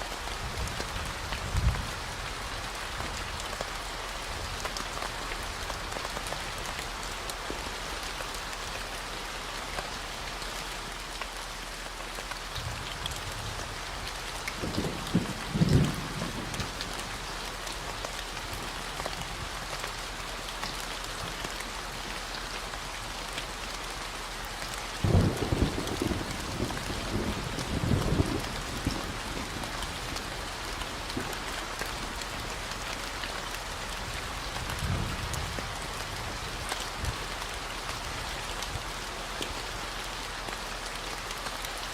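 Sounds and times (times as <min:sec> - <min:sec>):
rain hissing: 0:00.0 - 0:41.9
thunder rumbling: 0:14.6 - 0:16.8, 0:25.0 - 0:32.5.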